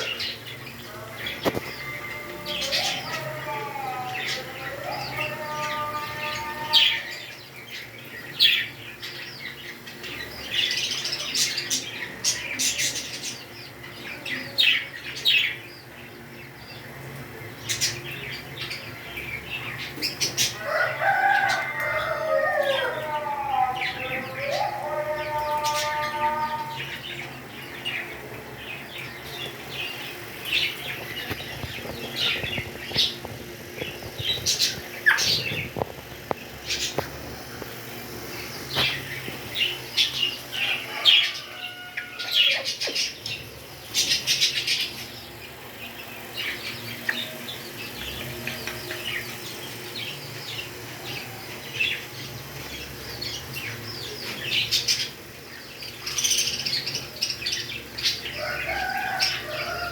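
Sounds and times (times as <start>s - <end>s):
parrots chirping: 17.6s - 59.9s.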